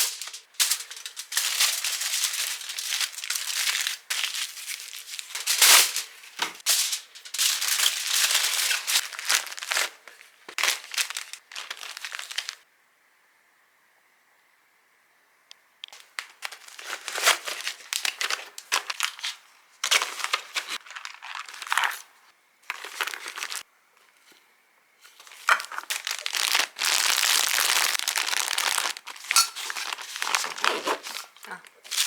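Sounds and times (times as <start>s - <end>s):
plastic packaging crinkling: 0.0s - 12.6s, 15.9s - 23.6s, 25.1s - 32.0s.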